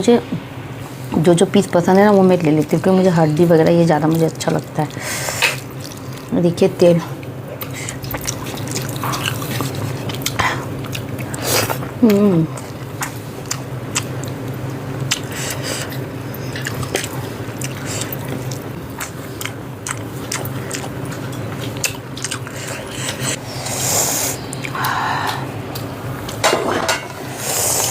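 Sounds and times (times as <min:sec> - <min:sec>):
person chewing chicken: 0:05.3 - 0:06.3, 0:07.5 - 0:26.4.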